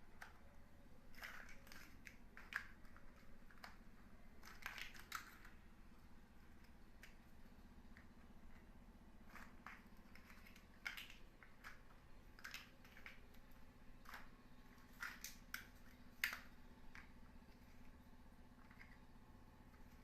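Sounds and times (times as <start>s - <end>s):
plastic building blocks clicking: 0.2s - 0.4s, 1.1s - 5.6s, 8.0s - 17.8s, 18.6s - 19.1s.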